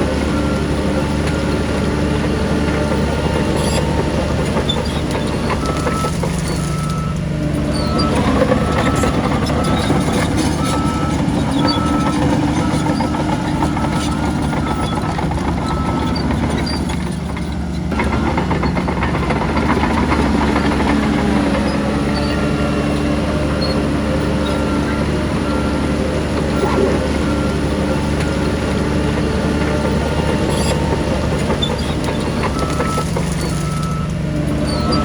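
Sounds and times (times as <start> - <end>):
heavy diesel engine under load: 0.0 - 35.0
reversing alarm beeping: 0.1 - 17.1, 18.0 - 35.0.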